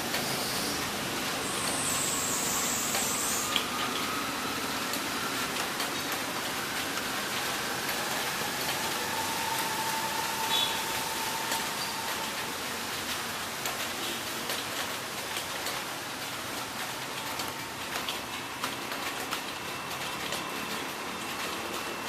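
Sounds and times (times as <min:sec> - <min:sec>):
heavy rain hiss: 0:00.0 - 0:22.0
faint drip-like ticks: 0:01.5 - 0:04.2.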